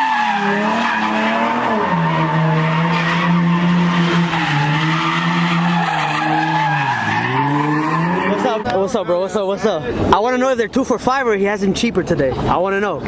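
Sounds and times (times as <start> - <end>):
car engine at high revs: 0.0 - 8.7
tyres squealing: 0.0 - 8.7.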